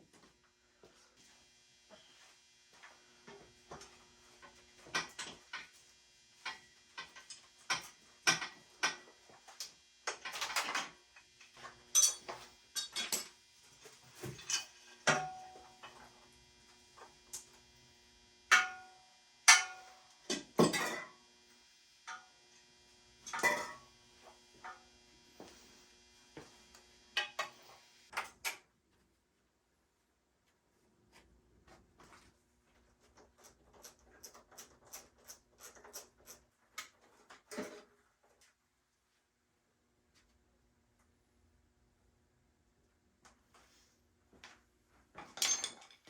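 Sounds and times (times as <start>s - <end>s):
metal tools clanking: 45.2s - 46.0s.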